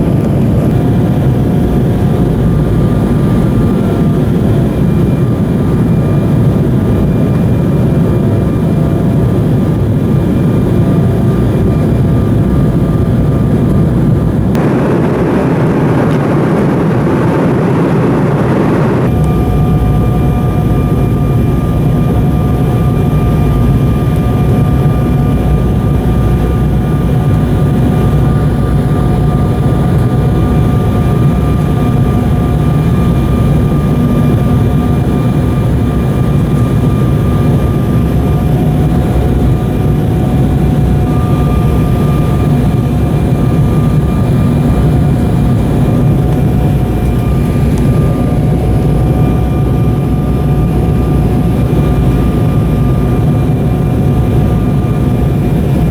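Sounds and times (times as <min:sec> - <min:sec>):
airliner cabin rumble: 0:00.0 - 0:55.9
steady whining tones: 0:09.4 - 0:32.4.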